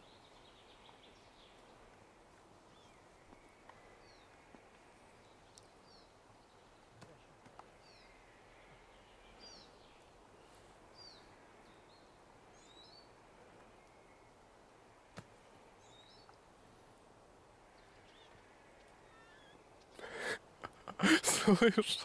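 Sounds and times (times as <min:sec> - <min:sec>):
faint bird chirps: 0:17.7 - 0:19.8.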